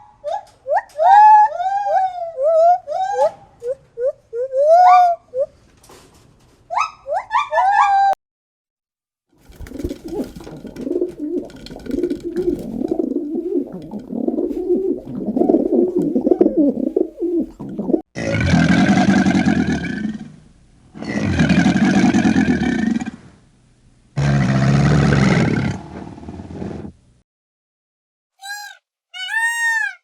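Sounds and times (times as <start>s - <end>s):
pigeons cooing: 9.5s - 18.0s, 28.4s - 30.0s
loud long animal calls: 28.4s - 30.0s.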